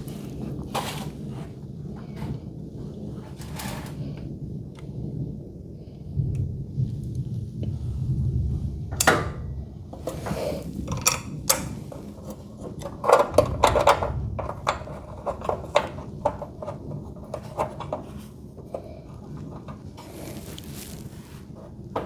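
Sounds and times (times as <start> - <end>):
metal tools clinking: 10.0 - 18.8.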